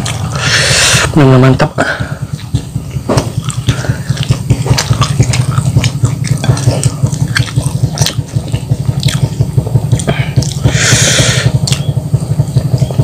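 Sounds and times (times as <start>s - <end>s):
chewing crispy food: 0.0s - 0.5s, 2.3s - 13.0s
steady low hum: 0.0s - 13.0s
lip smacks and mouth clicks: 3.2s - 10.8s, 11.5s - 12.0s.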